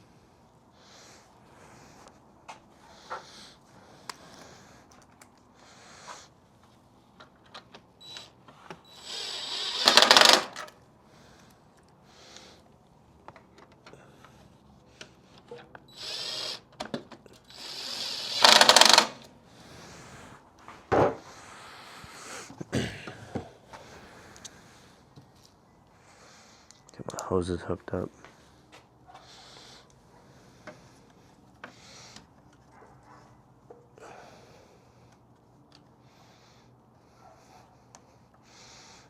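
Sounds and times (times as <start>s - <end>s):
power drill running fasteners: 8.0s - 10.7s, 15.9s - 19.3s
clicks and knocks of parts handled: 13.2s - 14.4s.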